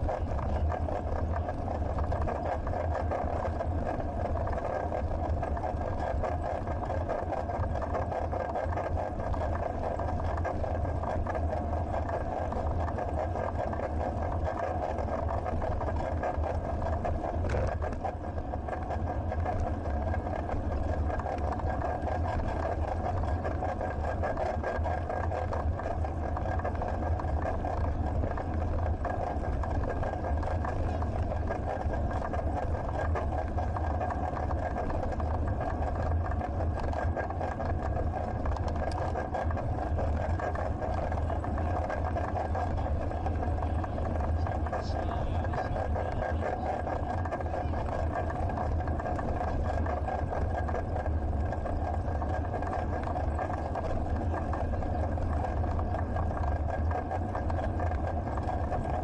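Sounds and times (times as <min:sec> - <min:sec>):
faint high whine: 0:00.0 - 0:37.0, 0:38.2 - 0:59.0
bicycle riding noise: 0:00.0 - 0:59.0.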